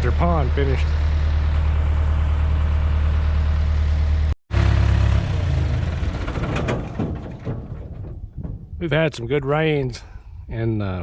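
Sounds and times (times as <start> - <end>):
heavy engine idling: 0.0 - 8.0.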